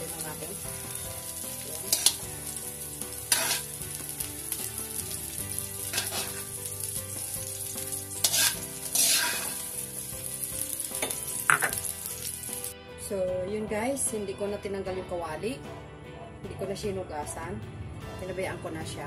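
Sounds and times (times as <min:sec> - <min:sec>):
onion rings sizzling in oil: 0:00.0 - 0:12.8
tongs scraping against wok: 0:01.3 - 0:02.6, 0:03.2 - 0:03.8, 0:05.2 - 0:11.9.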